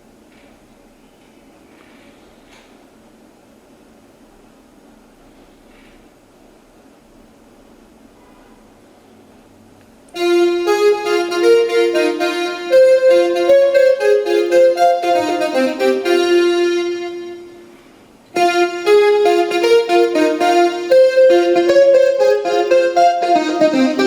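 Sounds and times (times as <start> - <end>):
piano music from speaker: 10.2 - 17.8, 18.4 - 24.0.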